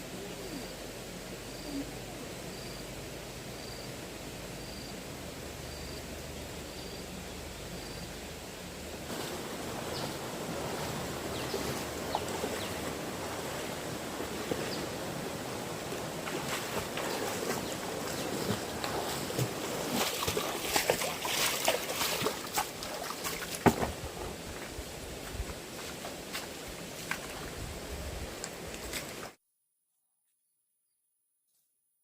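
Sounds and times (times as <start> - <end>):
stream water rushing: 4.0 - 29.4
splashes and knocks: 9.1 - 15.0, 15.9 - 24.7.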